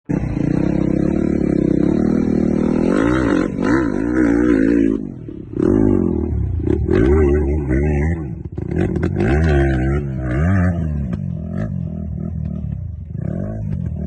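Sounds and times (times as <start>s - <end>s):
motorcycle engine revving: 0.1s - 14.0s.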